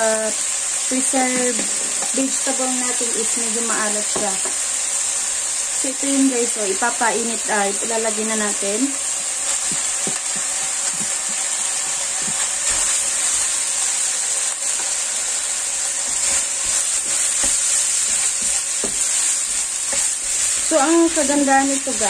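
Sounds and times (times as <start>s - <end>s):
meat sizzling in a pan: 0.0s - 22.0s
spatula scraping a pan: 16.0s - 21.2s.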